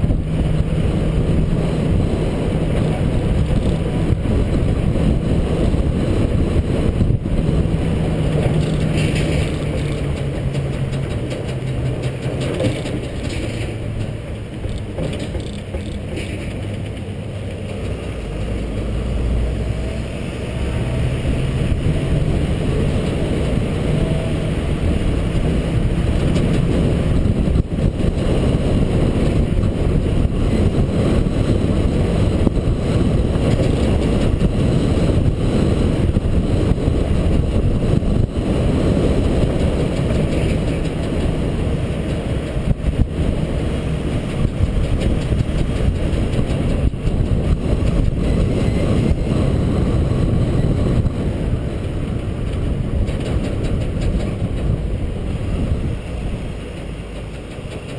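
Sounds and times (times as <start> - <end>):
road and wind noise: 0.0 - 57.9
truck diesel engine running: 0.0 - 57.9.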